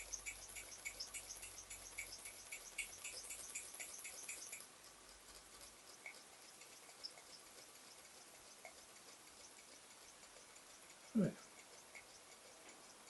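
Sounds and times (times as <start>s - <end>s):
model steam engine ticking: 0.0s - 13.0s.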